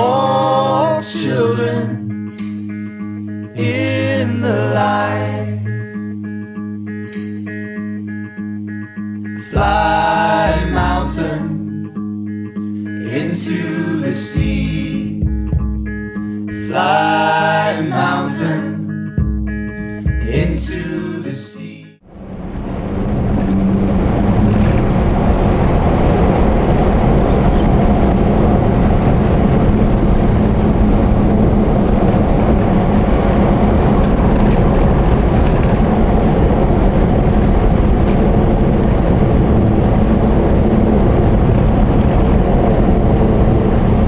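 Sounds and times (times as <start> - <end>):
vehicle engine and road noise: 0.0 - 0.4, 2.1 - 3.7, 4.7 - 9.0, 22.0 - 44.0.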